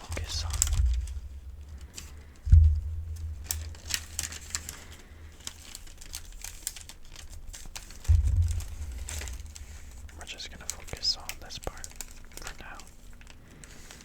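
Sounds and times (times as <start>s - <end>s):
paper crinkling: 0.0s - 14.0s
low thump with rumble: 0.1s - 4.8s, 8.0s - 12.1s.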